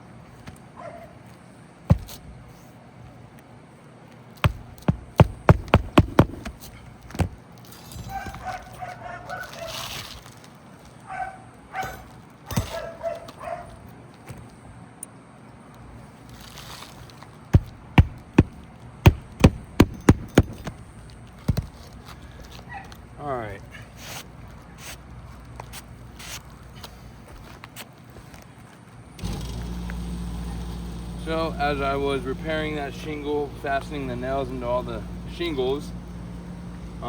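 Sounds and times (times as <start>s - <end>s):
hammer striking roofing nails: 1.9s - 2.2s, 4.4s - 7.4s, 17.6s - 21.9s.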